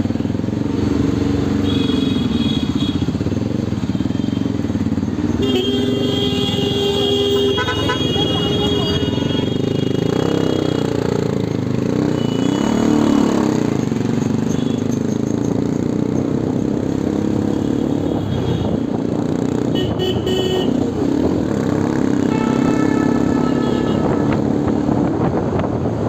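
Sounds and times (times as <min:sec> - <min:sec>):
motorcycle engine accelerating: 0:06.5 - 0:18.1, 0:20.8 - 0:26.0.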